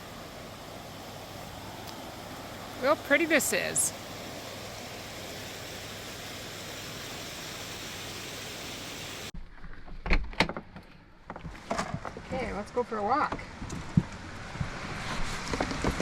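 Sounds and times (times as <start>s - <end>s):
water rushing hiss: 0.0s - 9.3s.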